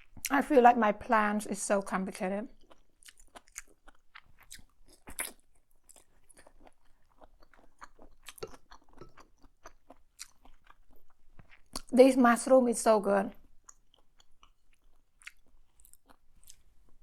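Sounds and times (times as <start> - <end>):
person chewing: 2.5 - 11.9, 13.4 - 17.0.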